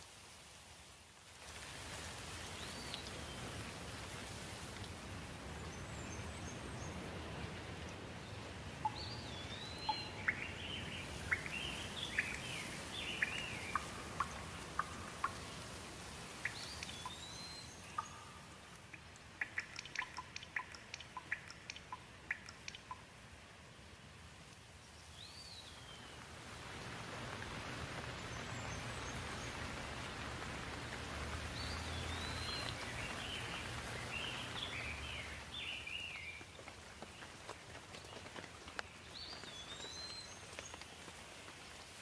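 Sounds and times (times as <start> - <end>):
hiss of falling water: 0.0 - 42.0
bird chirps: 8.8 - 15.6, 16.4 - 18.7, 31.6 - 36.4
sharp ticks: 17.9 - 23.1.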